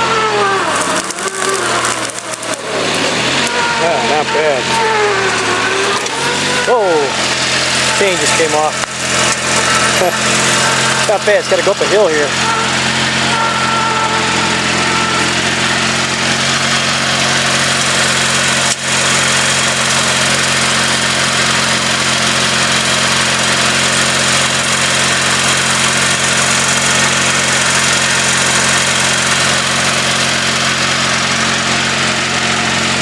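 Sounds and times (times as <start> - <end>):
garden tractor engine running: 0.0 - 33.0.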